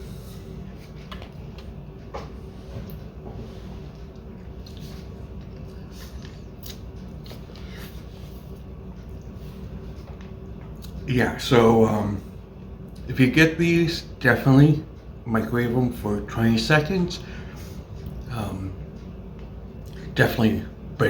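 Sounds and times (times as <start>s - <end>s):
low room hum: 0.0s - 21.0s
person chewing food: 2.7s - 11.0s.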